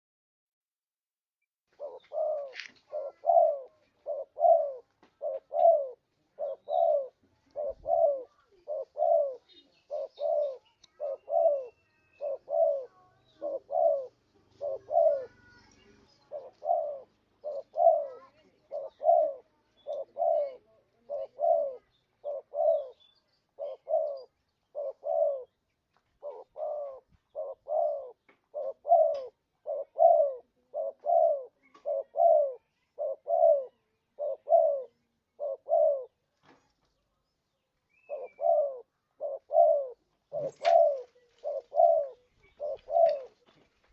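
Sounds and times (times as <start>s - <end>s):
dove cooing: 1.7s - 36.2s, 38.0s - 43.6s.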